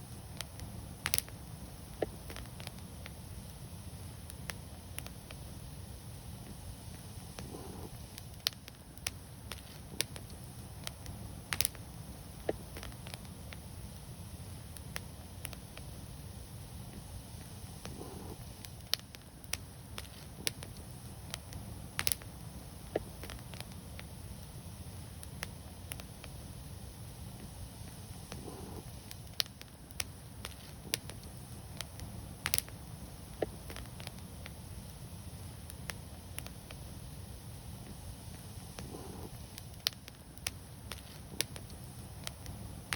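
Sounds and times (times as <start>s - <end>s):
low rumble of flame: 0.0s - 42.9s
wood fire crackling and popping: 0.0s - 42.9s.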